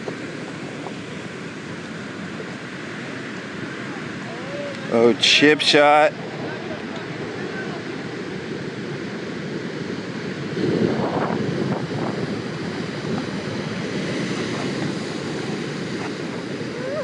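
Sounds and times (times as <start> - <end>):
wind on microphone: 0.0 - 4.9, 9.6 - 17.0
ocean surf breaking: 0.0 - 17.0.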